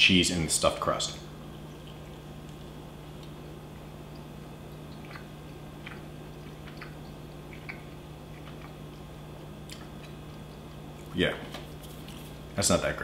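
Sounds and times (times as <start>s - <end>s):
steady low hum: 0.0s - 13.0s
person chewing: 4.0s - 12.4s.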